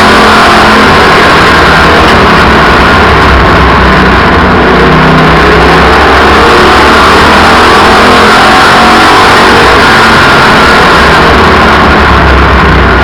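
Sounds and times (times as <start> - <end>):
race car engines roaring: 0.0 - 13.0.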